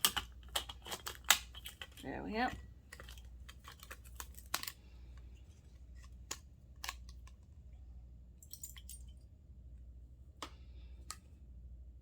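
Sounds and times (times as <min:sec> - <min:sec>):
small metal parts clicking: 0:00.0 - 0:02.1
low steady hum: 0:00.0 - 0:12.0.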